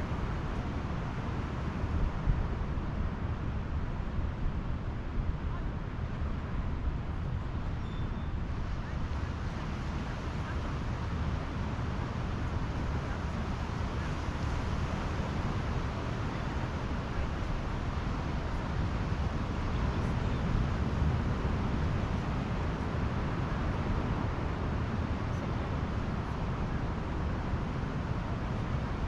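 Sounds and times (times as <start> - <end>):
surf waves washing onto beach: 8.5 - 29.0.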